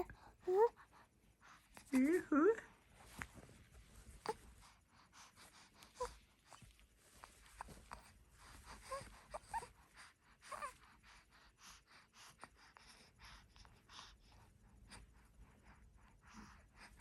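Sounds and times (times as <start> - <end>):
baby panting breaths: 4.1 - 17.0.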